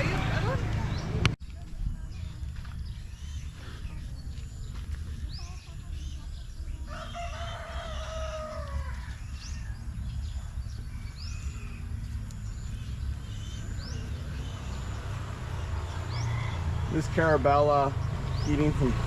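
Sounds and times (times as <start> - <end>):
rooster crowing: 6.9 - 9.2, 16.0 - 17.0.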